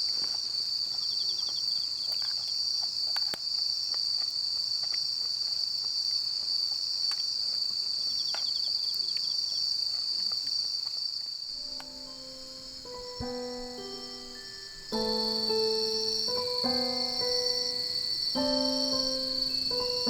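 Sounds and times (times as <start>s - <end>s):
crickets chirping: 0.0s - 20.0s
soft piano music: 11.6s - 20.0s.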